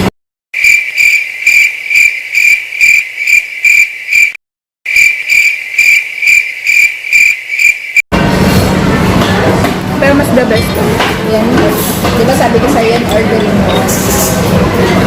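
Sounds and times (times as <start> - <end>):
crickets chirping: 0.6 - 8.0.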